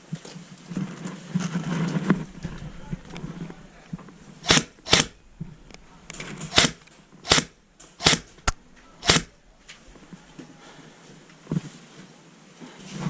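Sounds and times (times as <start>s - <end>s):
airsoft gun shots: 6.6s - 9.4s.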